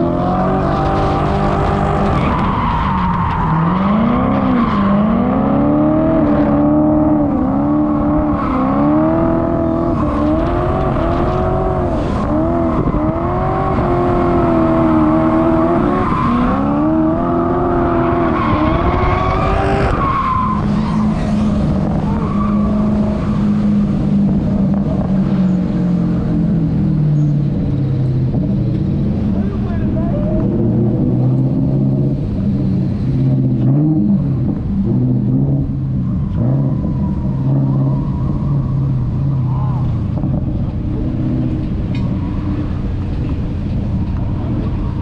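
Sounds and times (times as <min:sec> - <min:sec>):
car engine revving hard: 0:00.0 - 0:02.5, 0:03.4 - 0:25.2
tyres squealing and skidding: 0:00.0 - 0:23.8, 0:35.8 - 0:40.2, 0:40.9 - 0:43.3, 0:44.0 - 0:45.0.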